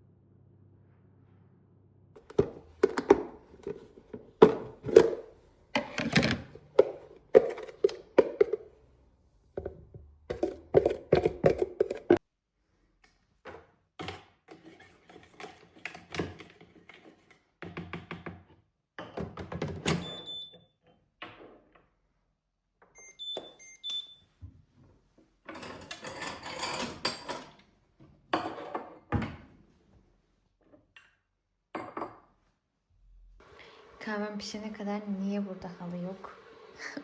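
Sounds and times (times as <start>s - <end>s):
knocks and clatter of objects: 2.2s - 8.8s, 9.6s - 12.2s
short electronic appliance beeps: 19.9s - 20.6s, 23.0s - 24.2s.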